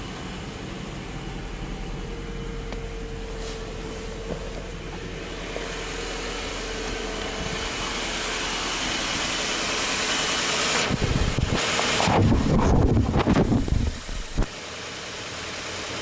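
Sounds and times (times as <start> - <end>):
car engine idling: 0.0 - 16.0
bursts of rough low noise: 10.8 - 14.5.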